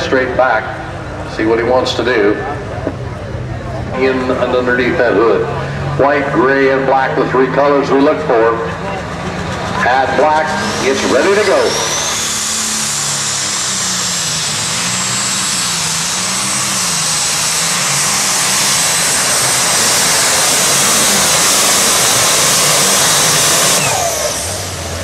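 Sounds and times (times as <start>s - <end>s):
high steady whine: 0.0s - 25.0s
tractor engine roaring: 0.0s - 25.0s.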